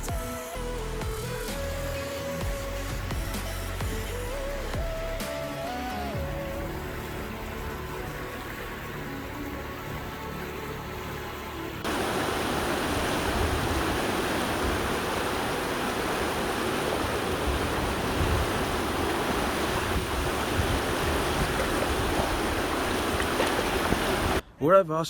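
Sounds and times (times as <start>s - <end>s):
river water rushing: 5.1s - 24.4s.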